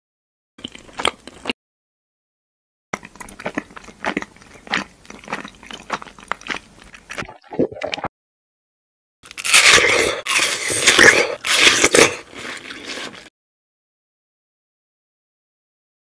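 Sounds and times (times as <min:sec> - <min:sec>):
crackly chewing and crunching: 0:00.6 - 0:01.6, 0:03.0 - 0:07.4, 0:09.2 - 0:13.3.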